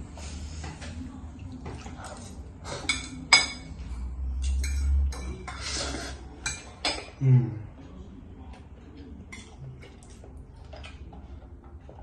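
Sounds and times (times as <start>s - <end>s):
cutlery clinking against dishes: 1.7s - 7.2s, 9.2s - 12.0s.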